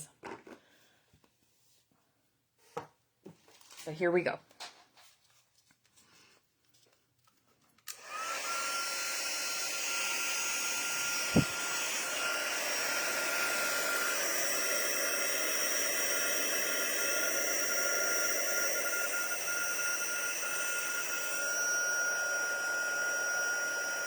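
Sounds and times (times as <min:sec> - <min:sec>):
heat tool blowing with whine: 0:07.9 - 0:24.0.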